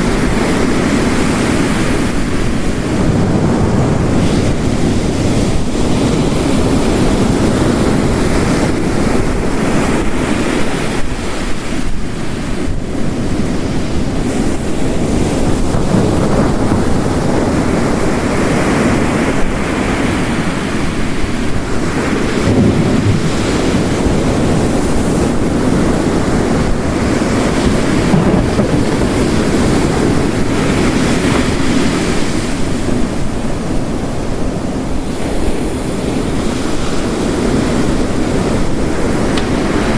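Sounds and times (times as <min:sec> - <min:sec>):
heavy rain: 0:00.0 - 0:39.9
ocean waves crashing: 0:00.0 - 0:39.9.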